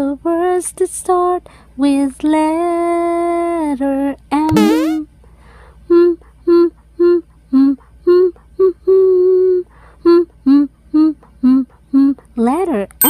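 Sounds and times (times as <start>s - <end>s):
person singing or humming: 5.9s - 12.2s.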